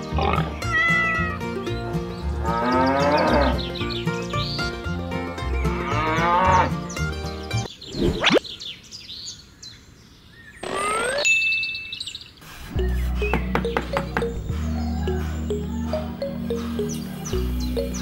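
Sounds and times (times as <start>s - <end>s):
cow mooing: 2.4s - 3.6s, 5.8s - 6.7s
background music with steady beat: 12.7s - 18.0s.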